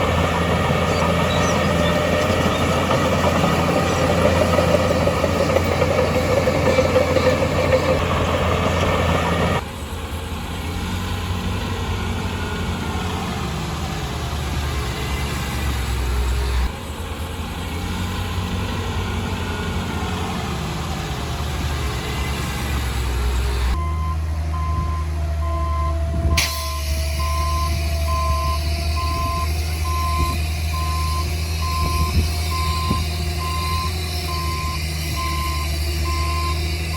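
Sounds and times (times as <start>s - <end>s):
heavy diesel engines running: 0.0s - 36.9s.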